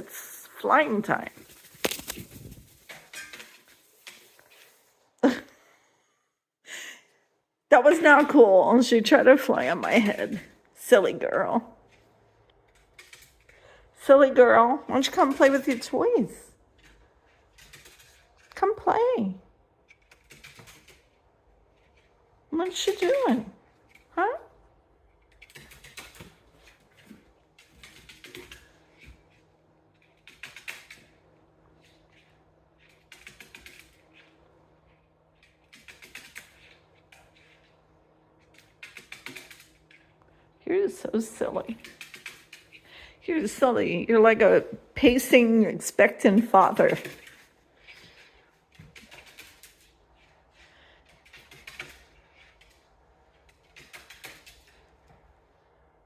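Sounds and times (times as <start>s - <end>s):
parrot clicking and tapping: 12.7s - 13.6s, 19.8s - 21.2s, 25.2s - 29.2s, 30.1s - 31.2s, 32.8s - 34.3s, 35.4s - 37.7s, 38.4s - 40.1s, 41.7s - 42.9s, 46.8s - 47.5s, 48.7s - 49.9s, 51.1s - 52.8s, 53.5s - 54.8s.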